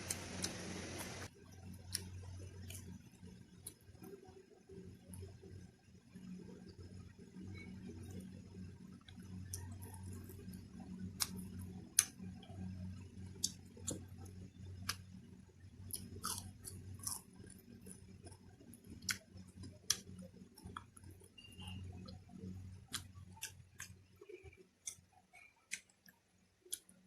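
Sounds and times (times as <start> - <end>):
person chewing: 11.2 - 12.2, 15.9 - 18.4, 19.0 - 21.2, 22.8 - 27.0.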